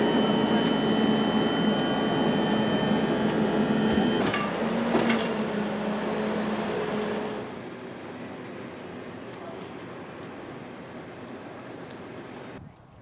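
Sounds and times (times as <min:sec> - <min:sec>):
machine droning hum: 0:00.0 - 0:04.3.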